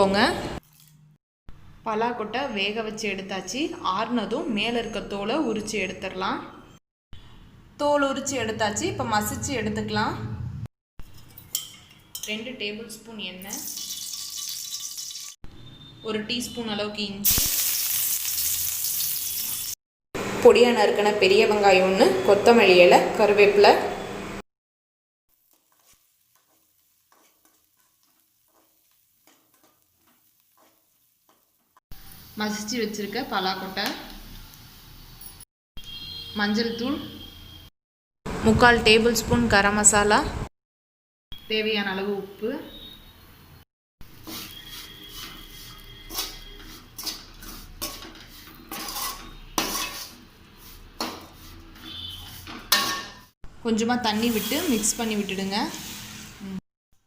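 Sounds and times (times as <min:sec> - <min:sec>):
metal spoon scraping a pan: 0:11.0 - 0:12.5, 0:25.5 - 0:31.6, 0:44.1 - 0:53.3
onion sizzling in oil: 0:13.5 - 0:15.4, 0:17.2 - 0:19.8, 0:25.3 - 0:35.4, 0:44.0 - 0:56.6.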